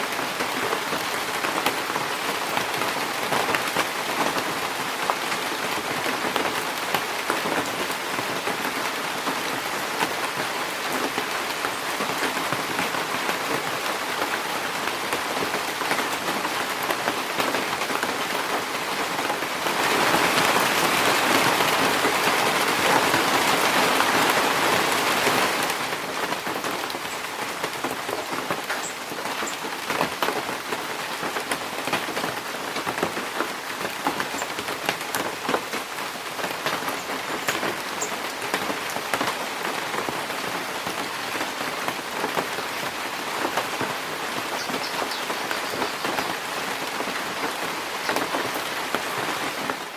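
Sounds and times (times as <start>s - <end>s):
rain falling in a forest: 0.0s - 49.9s
faint high bird chirps: 44.6s - 46.2s.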